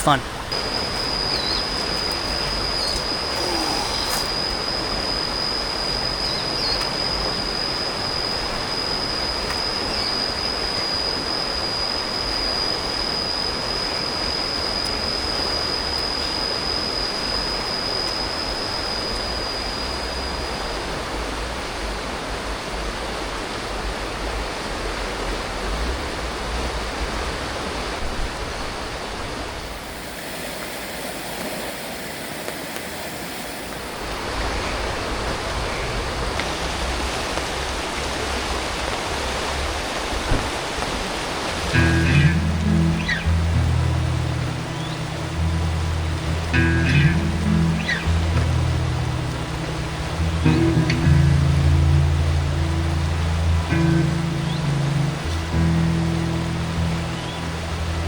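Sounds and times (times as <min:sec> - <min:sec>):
high-pitched whine: 0:00.0 - 0:40.1, 0:40.8 - 0:58.0
river water rushing: 0:20.8 - 0:58.0.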